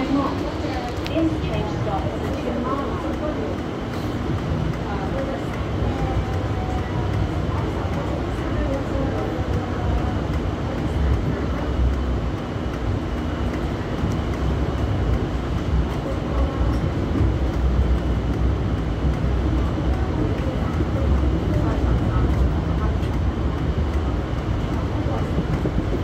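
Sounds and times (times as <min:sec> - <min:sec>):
light rail vehicle rumbling on track: 0:00.0 - 0:26.0.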